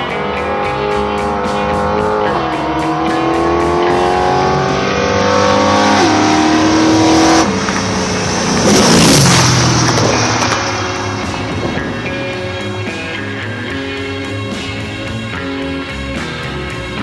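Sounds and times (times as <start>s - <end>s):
car engine accelerating hard: 0.0s - 16.9s
rock music: 0.0s - 17.0s
loud rushing burst of noise: 4.4s - 15.3s.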